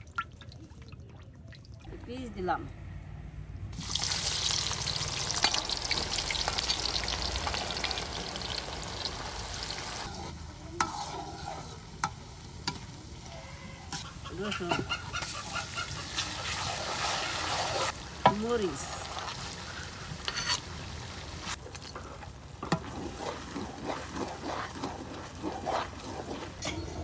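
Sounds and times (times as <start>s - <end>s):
chicken sizzling in hot oil: 3.8s - 21.6s.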